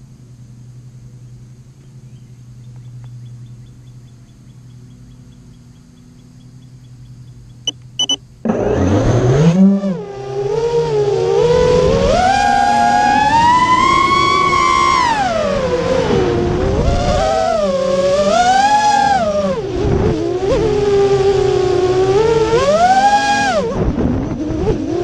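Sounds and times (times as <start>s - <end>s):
short high beeps: 7.7s - 8.2s
quadcopter motors whining: 7.7s - 25.0s.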